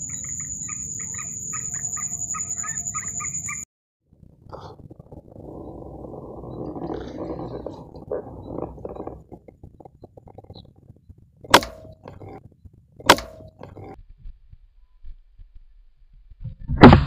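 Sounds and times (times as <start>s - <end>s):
air rifle shots: 11.5s - 12.2s, 13.0s - 13.6s.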